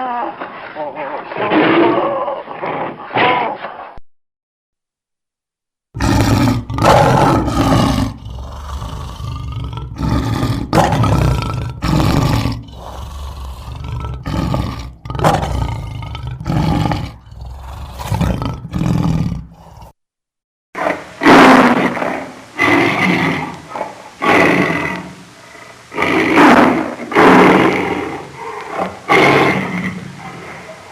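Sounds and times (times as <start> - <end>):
lion roaring: 6.0 - 20.0, 20.8 - 30.9.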